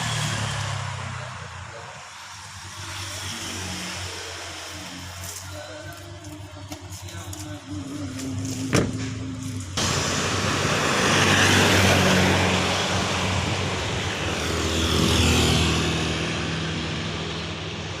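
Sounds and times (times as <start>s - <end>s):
rushing noise: 8.9s - 17.8s.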